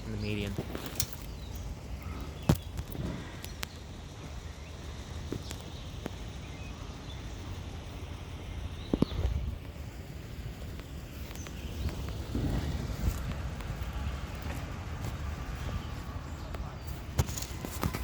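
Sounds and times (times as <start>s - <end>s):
low rumble: 0.0s - 17.7s.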